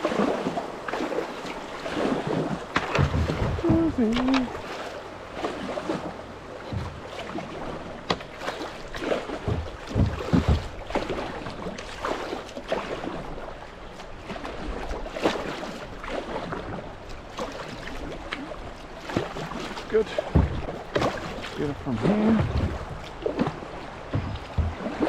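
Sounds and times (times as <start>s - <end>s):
paddle splashes: 0.0s - 25.0s
running water: 0.0s - 25.0s
low thumps: 9.4s - 11.0s, 20.2s - 25.0s.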